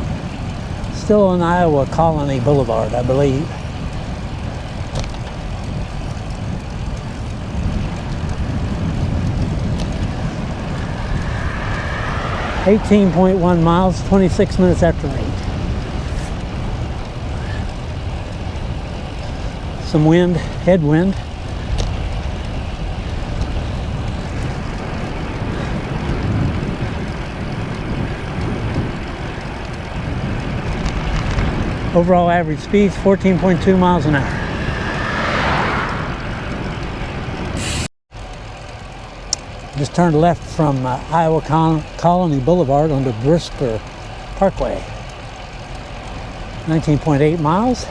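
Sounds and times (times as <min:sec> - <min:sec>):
wind rumbling on microphone: 0:00.0 - 0:47.9.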